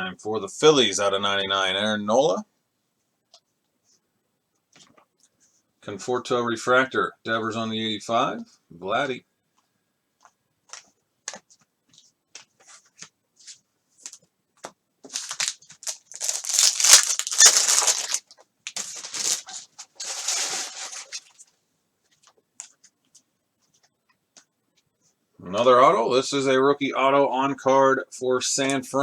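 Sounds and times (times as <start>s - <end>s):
card pack wrapper tearing: 15.1s - 21.4s.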